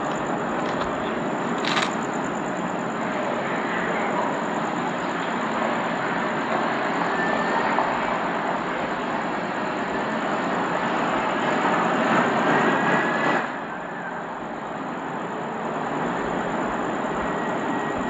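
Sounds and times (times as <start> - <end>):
faint high squeal: 2.9 - 10.4, 12.5 - 15.6, 16.2 - 18.0.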